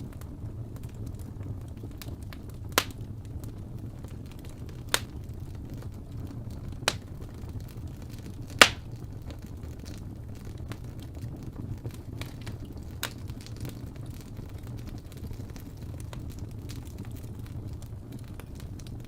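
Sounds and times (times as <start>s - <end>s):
fire burning in fireplace: 0.0s - 19.0s
loud sharp fire pops: 2.0s - 3.1s, 4.7s - 5.4s, 6.8s - 7.5s, 8.3s - 9.4s.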